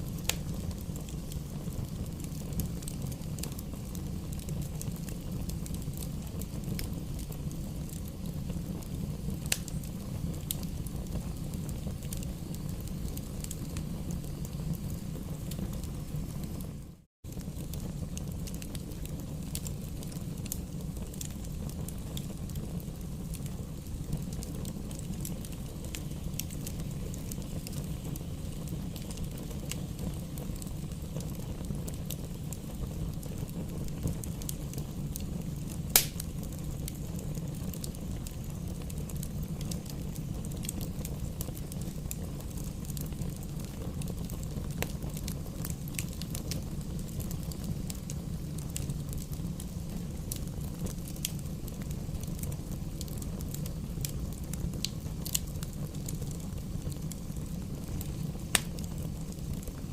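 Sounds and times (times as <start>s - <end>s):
fire crackles: 0.0s - 59.9s
wood fire rumbling: 0.0s - 59.9s
sharp pop from logs: 36.0s - 36.2s.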